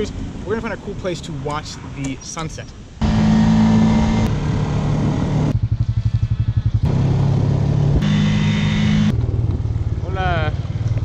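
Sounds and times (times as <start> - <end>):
atv engine running: 3.0 - 11.0.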